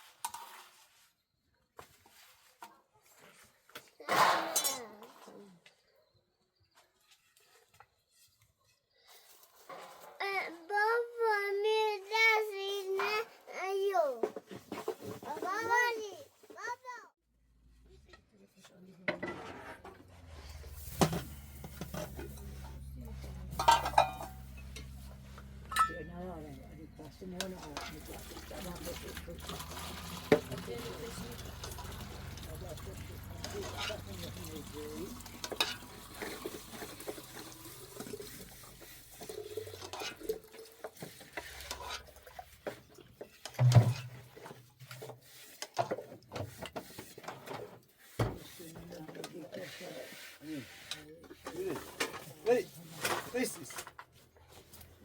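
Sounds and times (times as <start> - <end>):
metal cookware clattering: 4.0 - 5.1, 19.1 - 44.5
hands mixing dough in a bowl: 20.5 - 55.0
faint splashes: 26.6 - 43.2.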